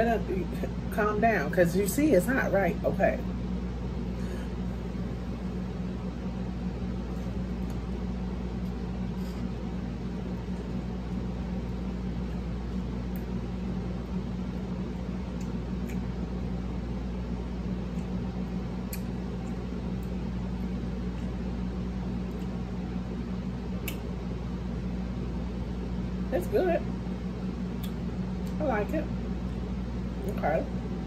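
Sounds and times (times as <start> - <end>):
low machine hum: 0.0 - 31.0
crunchy chewing clicks: 14.5 - 16.4, 17.8 - 21.4, 22.2 - 22.8, 23.8 - 24.1, 27.7 - 28.6.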